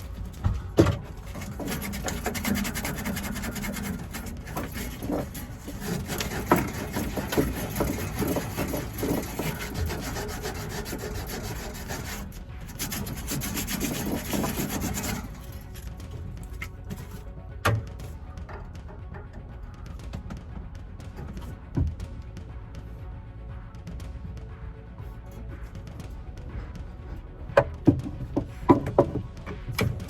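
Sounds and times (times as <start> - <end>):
hand scraping a hard surface: 0.0 - 20.5
clicks and knocks: 14.3 - 22.1.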